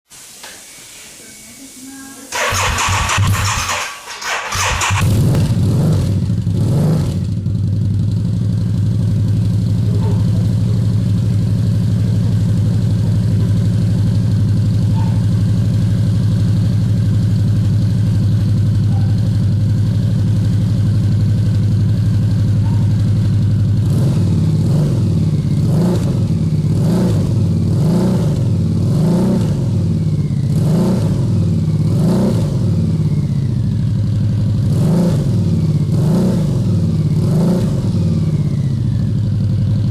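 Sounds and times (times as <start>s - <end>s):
trike engine idling and revving: 2.3s - 39.9s.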